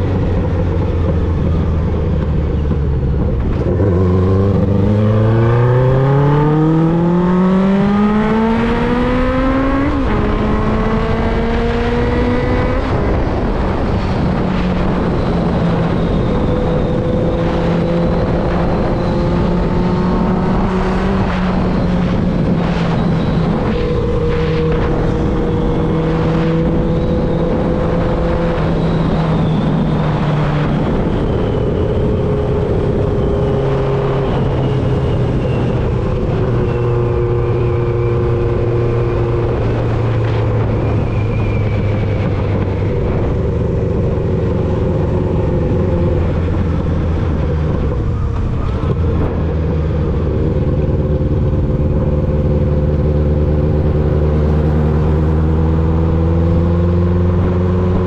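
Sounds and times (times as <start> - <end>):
motorcycle engine riding: 0.0 - 58.0.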